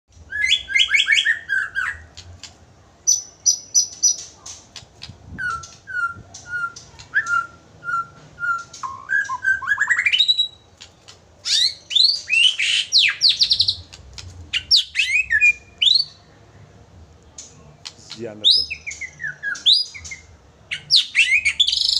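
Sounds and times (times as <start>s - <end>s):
myna whistling and chirping: 5.3s - 10.6s, 11.4s - 16.2s, 18.4s - 21.9s.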